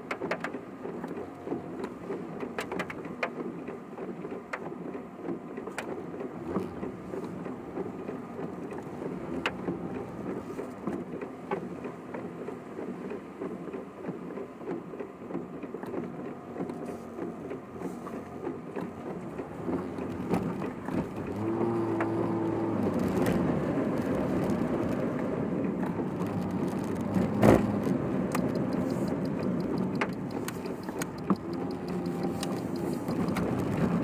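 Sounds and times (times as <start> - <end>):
engine and road rumble: 0.0 - 34.0
faint clicks: 18.0 - 34.0.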